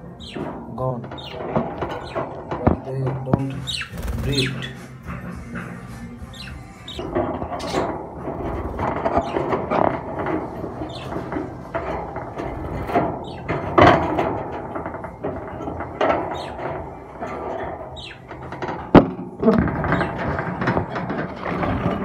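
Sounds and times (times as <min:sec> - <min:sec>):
budgerigars chattering and squawking: 0:00.0 - 0:08.0, 0:08.7 - 0:09.8, 0:10.5 - 0:11.8, 0:12.6 - 0:14.0, 0:16.2 - 0:16.8, 0:17.4 - 0:18.4.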